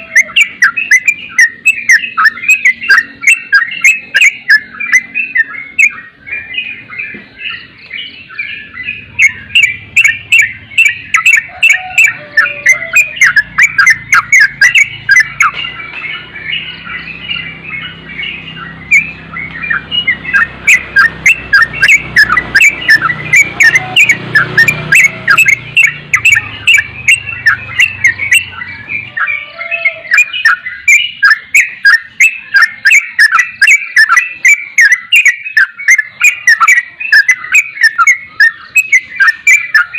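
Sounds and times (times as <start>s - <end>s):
bird chirping fast: 0.0s - 39.9s.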